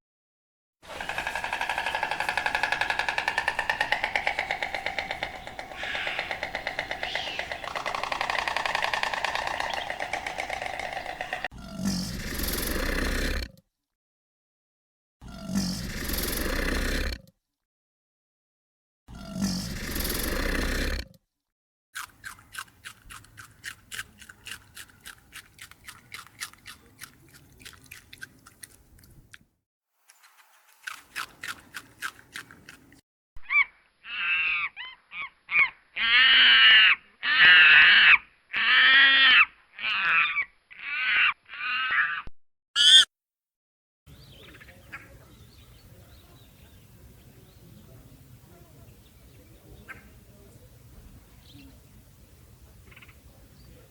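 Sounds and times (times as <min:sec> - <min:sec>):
drawn-out animal calls: 0:00.8 - 0:11.5, 0:42.8 - 0:43.1
rapid clicking pulses: 0:00.8 - 0:11.5.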